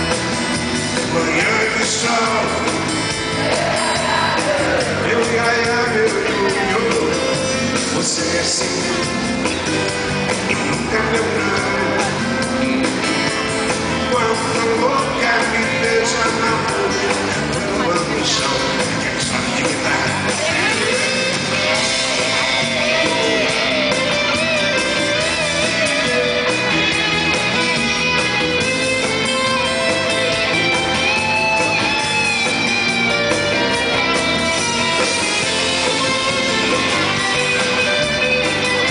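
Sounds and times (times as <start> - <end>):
guitar melody: 0.0 - 38.9
steady beat: 0.0 - 38.9
strummed chords: 0.0 - 38.9.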